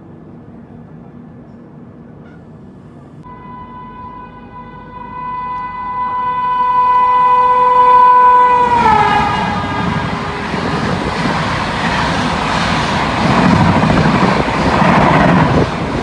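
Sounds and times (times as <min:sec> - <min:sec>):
passing train rushing and rumbling: 0:00.0 - 0:16.0
train horn: 0:03.2 - 0:11.1.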